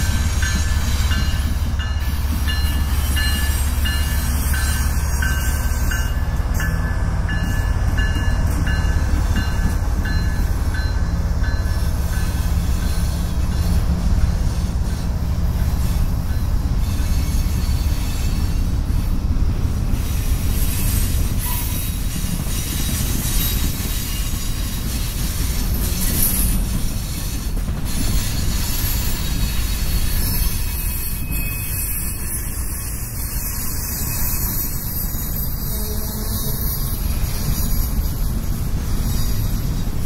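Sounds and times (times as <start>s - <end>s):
diesel locomotive rumble: 0.0s - 40.0s
freight cars rumbling and rattling: 0.0s - 40.0s
high-pitched wheel squeal: 12.3s - 18.9s, 20.0s - 38.3s.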